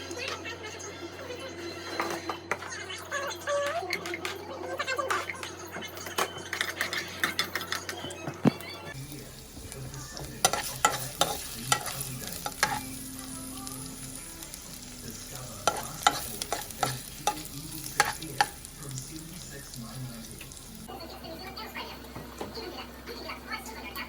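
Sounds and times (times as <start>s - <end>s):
food sizzling in a pan: 8.9s - 24.0s.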